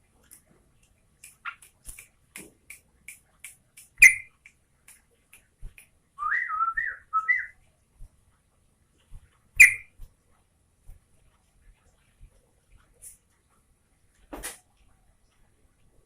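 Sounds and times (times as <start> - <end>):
bulbul calling: 4.0 - 4.3, 9.6 - 9.9
wavering whistled bird phrase: 6.2 - 7.5.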